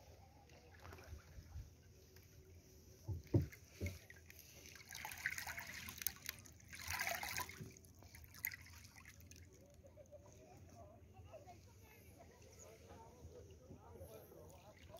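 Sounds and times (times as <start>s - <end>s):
water splashing and trickling: 0.2s - 10.6s.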